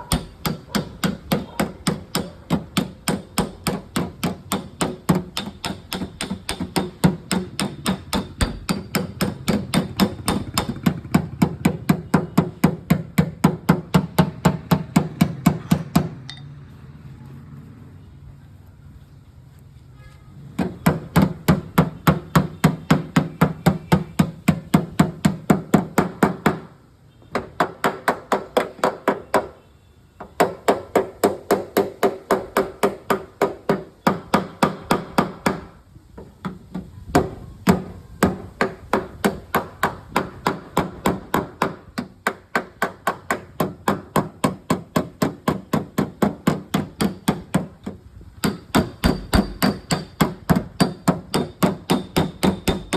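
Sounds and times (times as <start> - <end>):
hammer blows on sheet metal: 0.0 - 16.5, 36.4 - 52.9.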